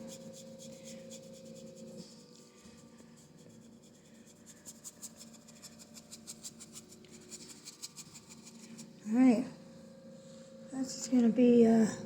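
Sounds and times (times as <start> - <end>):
paintbrush strokes on canvas: 0.0 - 9.4.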